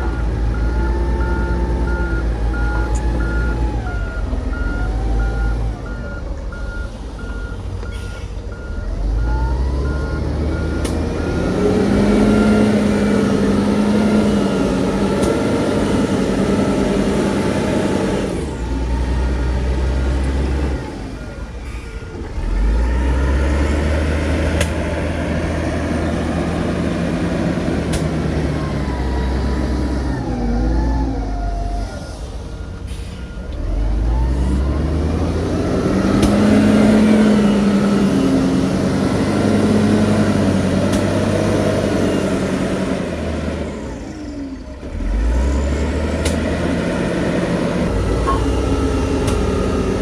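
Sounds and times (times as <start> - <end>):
reversing alarm beeping: 0.0 - 21.8, 47.9 - 50.0
diesel machinery engine: 0.0 - 50.0.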